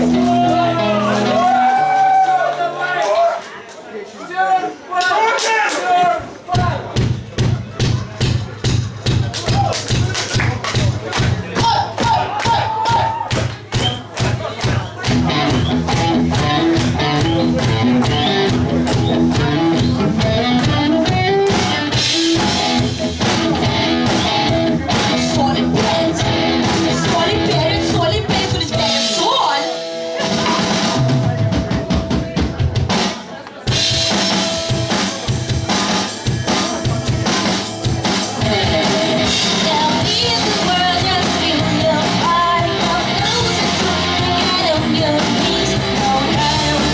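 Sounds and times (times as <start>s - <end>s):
bass guitar: 0.0s - 2.8s, 15.0s - 33.0s, 33.7s - 46.9s
drum kit: 0.0s - 3.2s, 6.5s - 46.9s
electric guitars: 0.0s - 3.3s, 15.0s - 32.9s, 33.7s - 46.9s.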